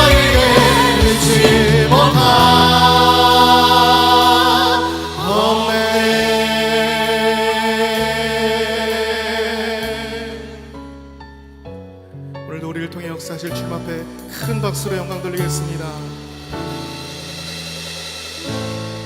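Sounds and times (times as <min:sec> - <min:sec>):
bass stepping down: 0:00.0 - 0:05.6
voices singing long notes: 0:00.0 - 0:10.8.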